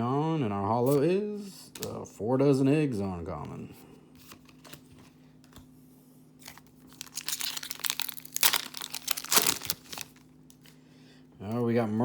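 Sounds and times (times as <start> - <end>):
foil wrapper crinkling and tearing: 6.4 - 10.8.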